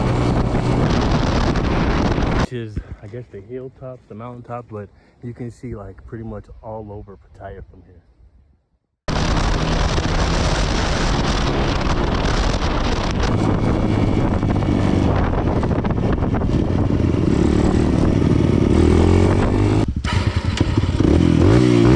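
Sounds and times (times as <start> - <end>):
dirt bike engine revving: 0.0 - 2.5, 9.1 - 21.9.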